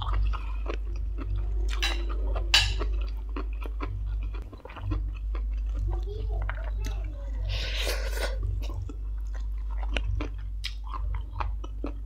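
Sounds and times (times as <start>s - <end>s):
steady low hum: 0.0s - 12.0s
wet chewing and mouth smacks: 8.6s - 12.0s.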